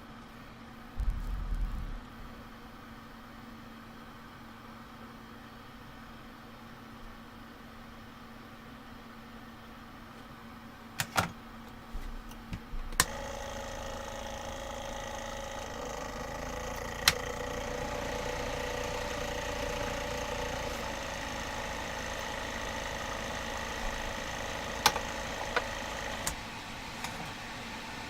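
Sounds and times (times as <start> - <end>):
electric fan whirring: 0.8 - 3.2, 11.1 - 28.0.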